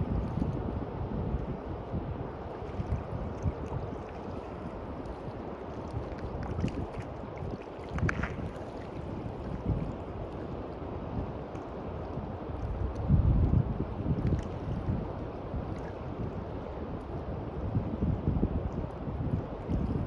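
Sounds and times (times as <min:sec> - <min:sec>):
waves washing on beach: 0:00.0 - 0:13.0
wind buffeting microphone: 0:00.0 - 0:20.0.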